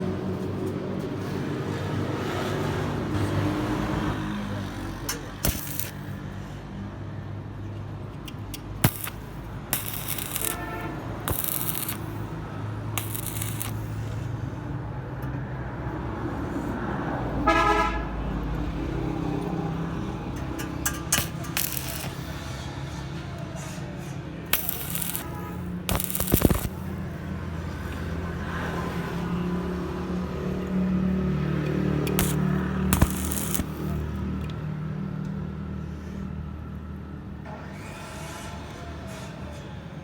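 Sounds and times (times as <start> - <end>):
road traffic: 0.0 - 40.0
vehicle horn tooting: 10.4 - 11.1, 17.4 - 18.2.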